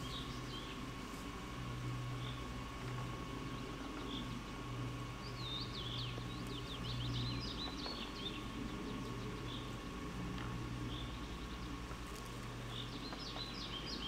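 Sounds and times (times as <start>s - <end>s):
songbird twittering: 0.0s - 0.8s, 5.2s - 9.7s, 12.6s - 14.0s
steady low hum: 0.0s - 14.0s.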